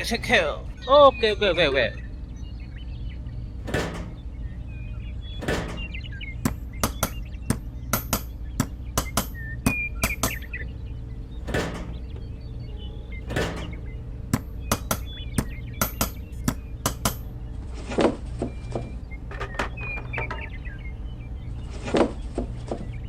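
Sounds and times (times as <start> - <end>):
steady low hum: 0.0 - 23.0
rapid sharp knocks: 5.4 - 10.5, 13.4 - 17.4.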